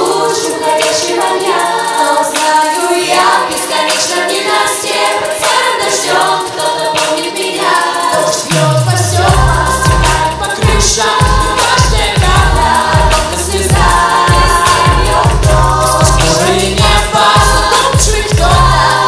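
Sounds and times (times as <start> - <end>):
children singing in harmony: 0.0 - 19.0
heavy bass beat: 8.2 - 19.0
falling bass sweep: 8.5 - 10.7.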